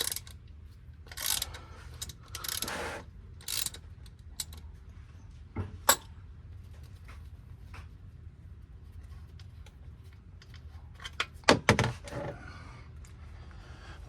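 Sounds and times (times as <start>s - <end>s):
ratchet clicking: 0.0s - 0.4s, 1.1s - 2.8s, 3.4s - 4.6s
sharp metal clicks: 3.4s - 4.6s.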